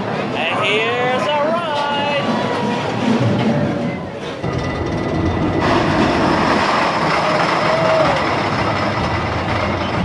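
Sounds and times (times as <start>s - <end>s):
roller coaster rumbling on track: 0.0s - 10.0s
roller coaster squeal: 2.2s - 10.0s.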